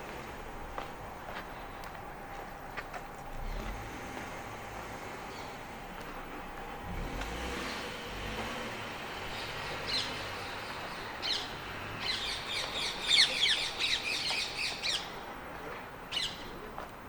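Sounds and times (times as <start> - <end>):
outdoor background noise: 0.0 - 17.0
bird calling: 9.3 - 15.2.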